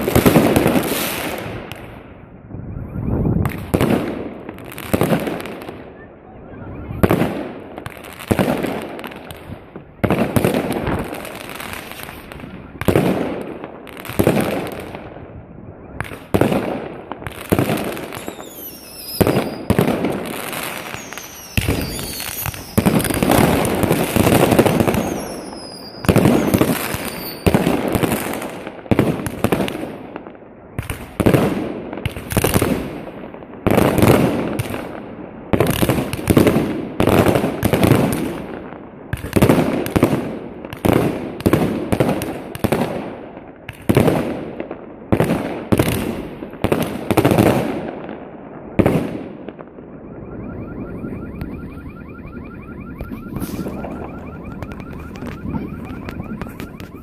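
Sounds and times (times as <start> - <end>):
firework bangs echoing: 0.0 - 2.2, 3.4 - 6.2, 6.8 - 50.2, 52.3 - 57.0
falling firework whistles: 2.3 - 3.9, 17.5 - 28.3, 49.9 - 57.0.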